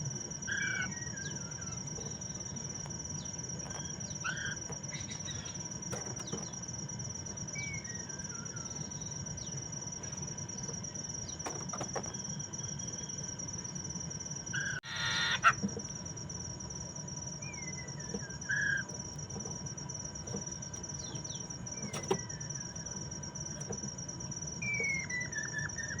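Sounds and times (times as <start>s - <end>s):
bird singing whistled notes: 7.5s - 9.5s, 17.4s - 18.8s, 24.6s - 26.0s
high-pitched insect buzz: 14.3s - 15.6s
harsh bird call: 14.6s - 15.6s.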